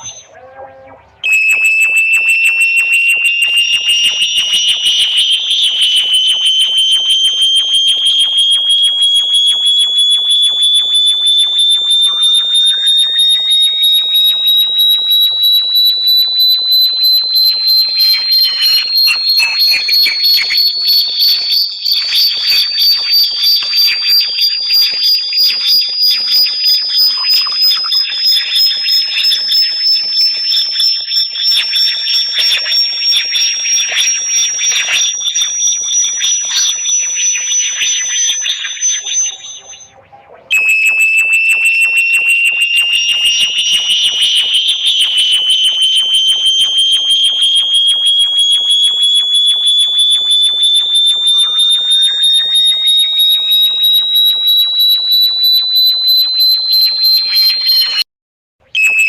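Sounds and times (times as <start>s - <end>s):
faint gliding electronic tones: 0.0s - 9.2s, 15.3s - 46.4s
shrill pulsing electronic whistle: 0.0s - 59.0s.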